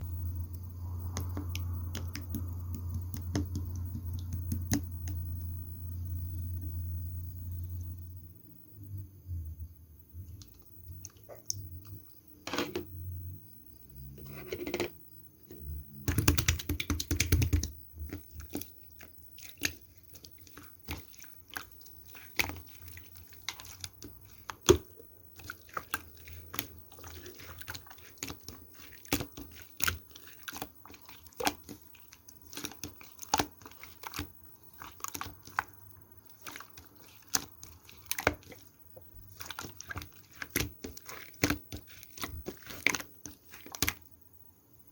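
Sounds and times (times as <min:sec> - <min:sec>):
slime clicking and popping: 0:16.0 - 0:17.8.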